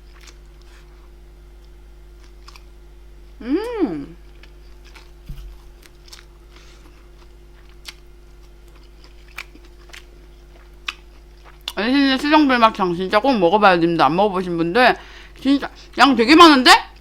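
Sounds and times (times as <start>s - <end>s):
person humming mm: 3.4s - 4.2s
mouth chewing: 4.3s - 12.3s.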